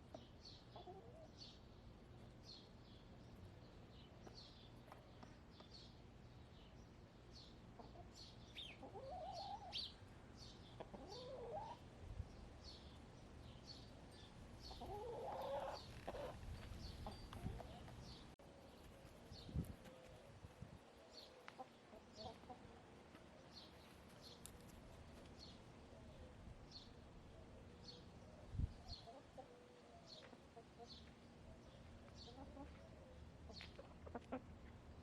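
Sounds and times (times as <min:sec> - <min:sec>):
small birds chirping: 0:00.0 - 0:34.8
hens clucking: 0:07.8 - 0:09.8, 0:10.8 - 0:11.8, 0:14.6 - 0:18.2, 0:33.5 - 0:34.6.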